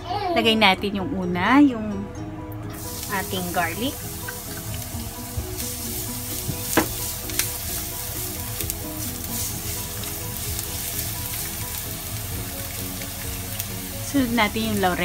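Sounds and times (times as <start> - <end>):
garlic sizzling in hot oil: 2.8 - 15.0
plastic spatula tapping and scraping pan: 6.4 - 7.6.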